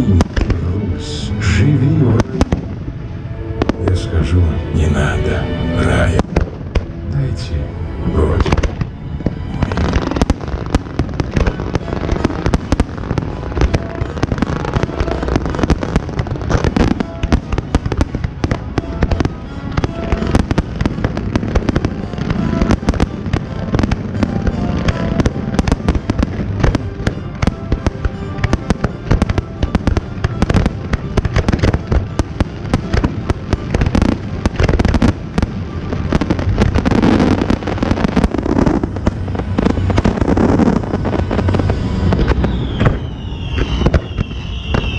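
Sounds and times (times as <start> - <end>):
fireworks bangs and crackles: 0.0 - 44.9.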